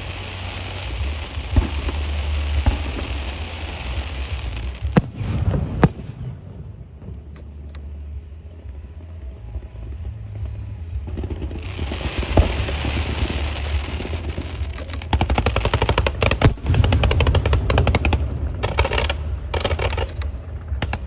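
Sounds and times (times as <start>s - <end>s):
fireworks crackling: 0.0s - 6.6s, 11.4s - 20.2s
steady low rumble: 0.0s - 21.0s
firecracker bangs: 4.9s - 6.8s, 16.5s - 18.4s.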